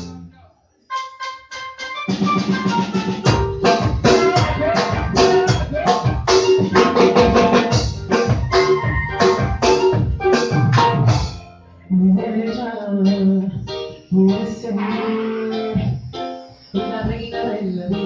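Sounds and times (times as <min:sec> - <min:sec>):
drum kit beat: 0:00.0 - 0:00.2, 0:01.0 - 0:11.5
electronic keyboard chords: 0:00.0 - 0:00.3, 0:00.9 - 0:18.0.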